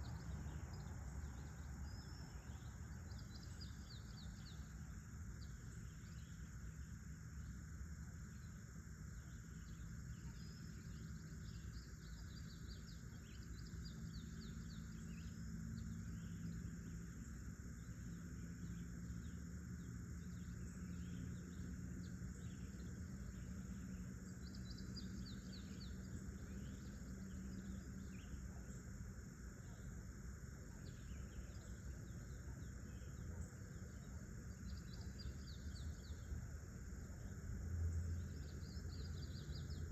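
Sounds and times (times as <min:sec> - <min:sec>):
insect hiss: 0:00.0 - 0:39.9
small birds trilling: 0:08.2 - 0:39.9.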